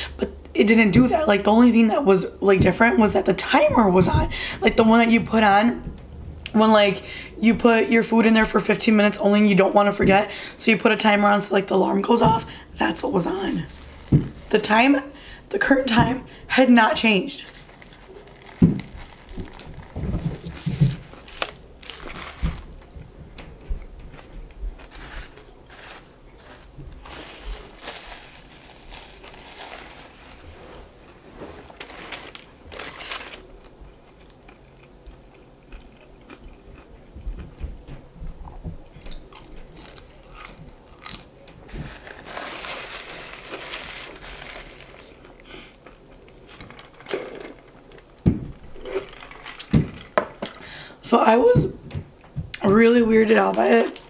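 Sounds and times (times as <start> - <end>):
crunching and chewing sandwich: 17.5 - 22.9, 23.9 - 30.4, 31.6 - 37.6, 39.1 - 48.0.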